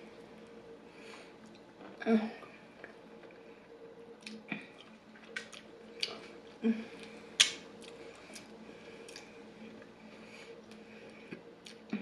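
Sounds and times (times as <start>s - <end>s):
faint steady hum: 0.0s - 12.0s
lip smacks and clicks: 4.2s - 6.2s, 7.0s - 8.5s, 9.1s - 9.3s
chewing: 4.2s - 9.8s.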